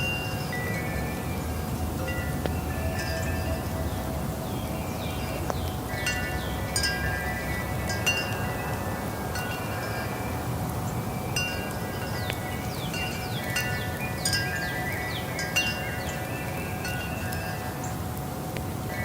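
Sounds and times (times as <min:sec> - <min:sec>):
steady low rumble: 0:00.0 - 0:14.2
wind chimes ringing: 0:00.0 - 0:18.1.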